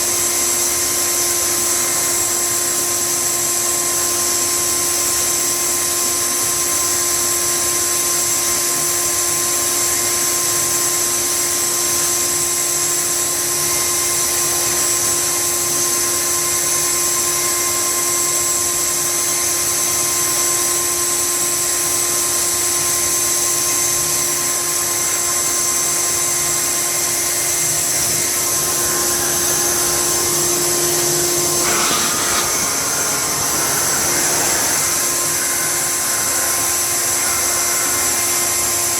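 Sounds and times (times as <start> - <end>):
electric blower motor whining: 9.2 - 38.9
rushing air: 27.6 - 38.9.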